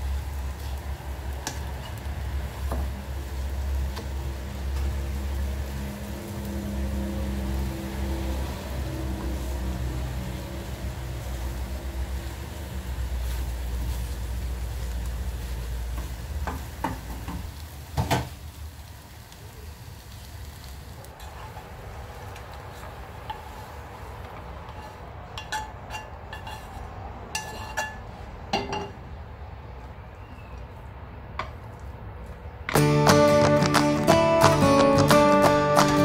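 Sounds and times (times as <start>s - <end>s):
food frying in a pan: 0.0s - 28.9s
wooden spatula scraping a pan: 21.2s - 28.0s.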